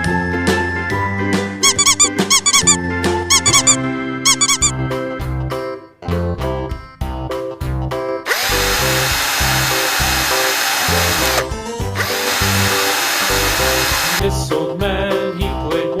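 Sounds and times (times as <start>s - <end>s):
background music: 0.0s - 16.0s
power drill whining: 8.3s - 14.2s.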